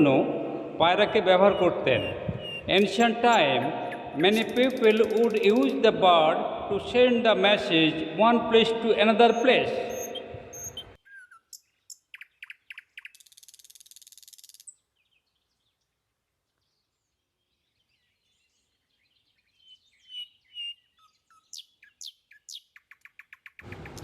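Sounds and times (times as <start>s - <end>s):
high downward whistles: 0.0s - 5.7s
songbirds chirping and trilling: 0.0s - 24.0s.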